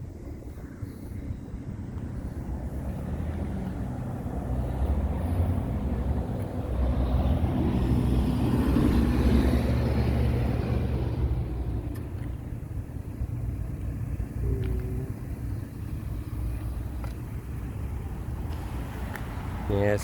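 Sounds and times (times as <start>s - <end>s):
vehicle passing close by: 2.5s - 11.9s.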